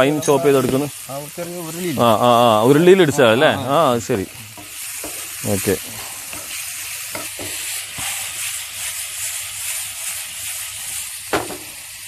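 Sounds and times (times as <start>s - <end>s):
chicken sizzling in a frying pan: 0.0s - 12.0s
sharp knock against pan: 11.3s - 11.7s.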